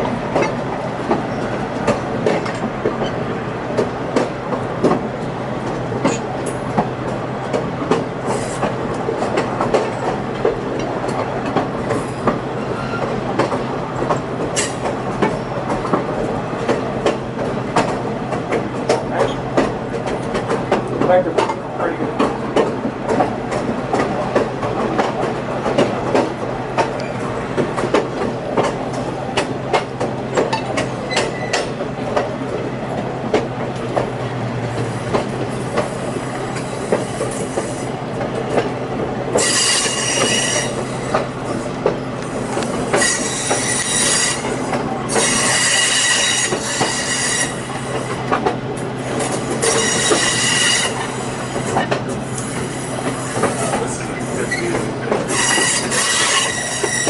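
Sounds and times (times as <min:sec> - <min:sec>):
train rolling hum: 0:00.0 - 0:57.0
wheel flanges squealing: 0:12.0 - 0:13.2, 0:31.0 - 0:31.7, 0:52.5 - 0:57.0.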